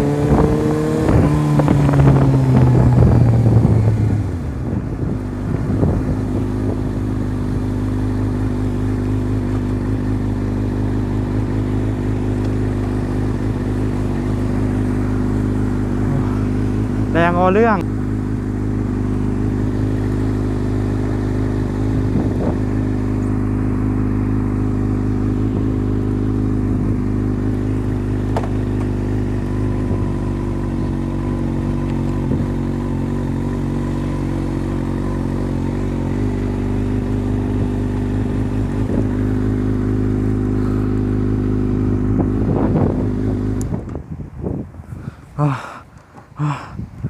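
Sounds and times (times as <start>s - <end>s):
wind rushing over microphone: 0.0s - 7.2s, 21.8s - 23.1s, 41.9s - 45.4s, 46.4s - 47.0s
motorcycle engine running: 0.0s - 47.0s.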